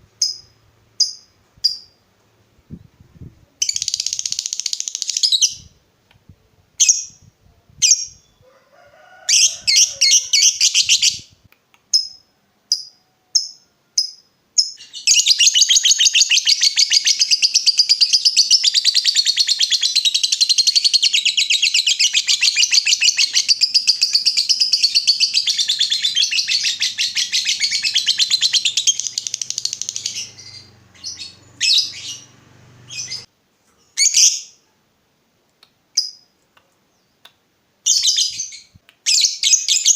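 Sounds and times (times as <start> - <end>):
lovebird chirping and trilling: 0.2 - 2.0, 3.6 - 5.8, 6.8 - 7.2, 7.8 - 8.4, 9.3 - 33.3, 34.0 - 34.6, 37.8 - 39.9.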